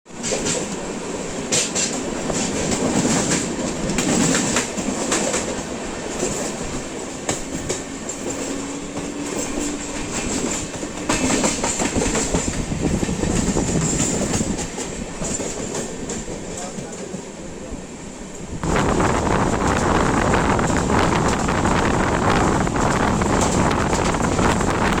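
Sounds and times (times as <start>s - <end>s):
train running on rails: 0.1s - 25.0s
wheels clicking over rail joints: 0.2s - 17.3s.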